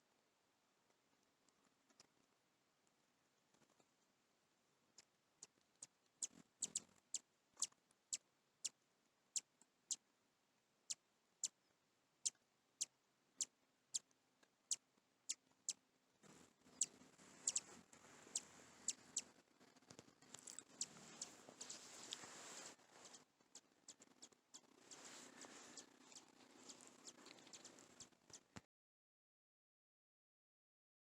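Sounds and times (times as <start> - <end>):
birds pecking ticks: 5.0 - 8.8, 16.7 - 28.6
soft rustling: 16.2 - 28.6.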